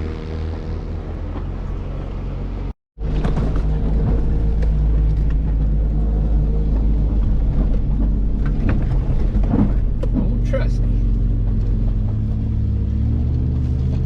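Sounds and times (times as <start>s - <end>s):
vehicle engine rumbling: 0.0s - 14.0s
knocks and rattles: 6.6s - 12.3s.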